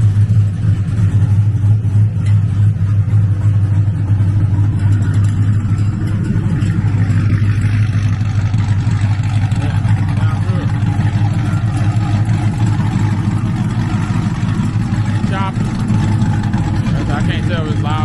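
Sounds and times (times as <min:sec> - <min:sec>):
car engine deep exhaust: 0:00.0 - 0:18.0.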